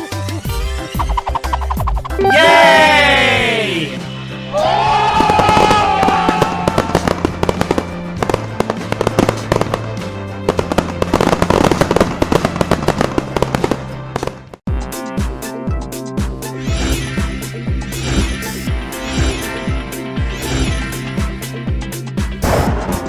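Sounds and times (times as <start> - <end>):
music with steady beat: 0.0 - 14.0, 14.7 - 23.0
upbeat background music: 0.0 - 23.0
fireworks crackling and popping: 6.3 - 14.7.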